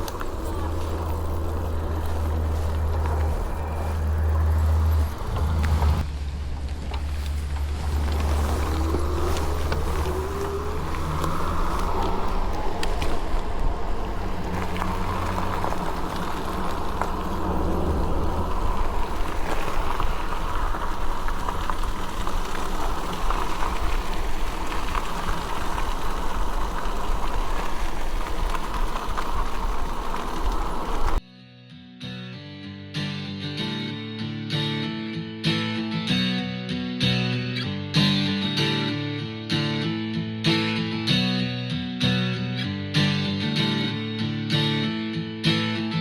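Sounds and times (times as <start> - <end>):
electric bike motor whine: 0.0 - 31.2
wind on microphone: 0.0 - 31.2
guitar music: 31.2 - 46.0.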